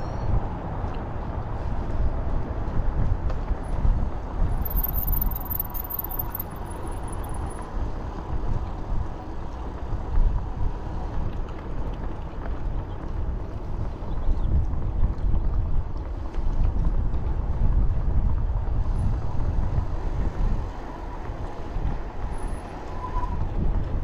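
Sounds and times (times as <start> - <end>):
wind buffeting microphone: 7.8 - 22.3, 23.2 - 24.0.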